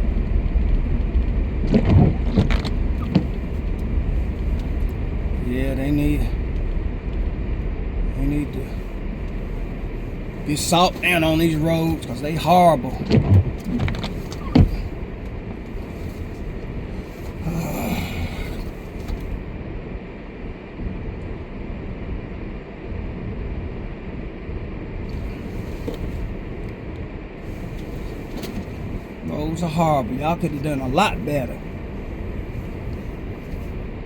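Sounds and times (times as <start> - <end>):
car engine and tyres rumbling: 0.0 - 34.0.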